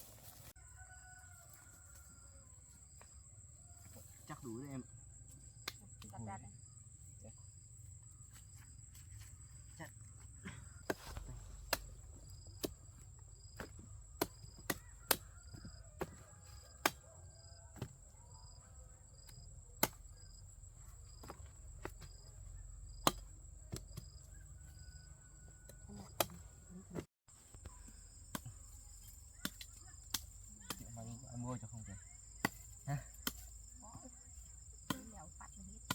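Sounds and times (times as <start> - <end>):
insect chirping: 0.0 - 35.9
blade chopping cassava: 13.6 - 15.2.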